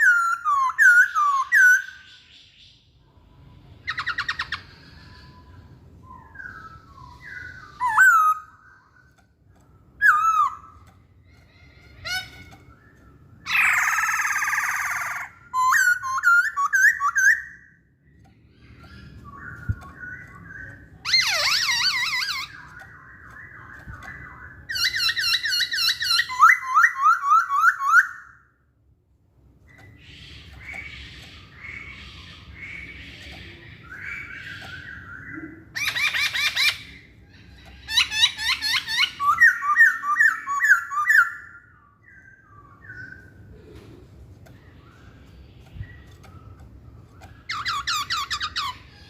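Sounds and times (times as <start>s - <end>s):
bird singing whistled phrases: 3.8s - 9.0s, 12.1s - 17.8s, 18.9s - 28.5s, 37.9s - 43.4s.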